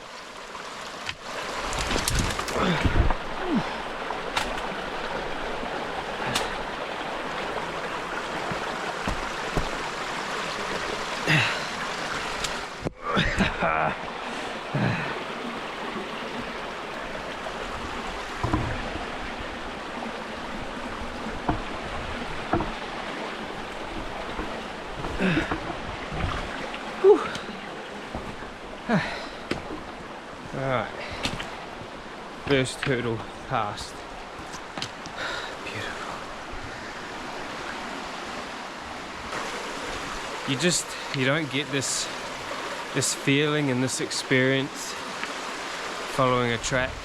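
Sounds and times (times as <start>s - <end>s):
stream rushing: 0.0s - 47.0s
person pushing through scrub: 1.5s - 4.7s, 8.3s - 9.8s, 23.7s - 31.8s.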